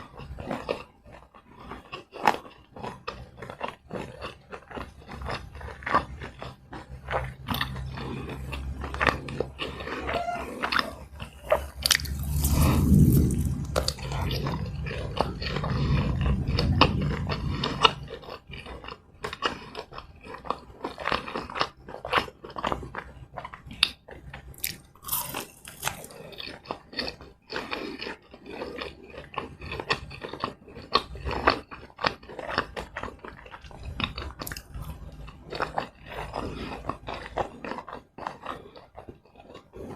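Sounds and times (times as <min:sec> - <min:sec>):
crunching and chewing fried snacks: 0:00.0 - 0:39.9
low rumble: 0:11.0 - 0:18.9.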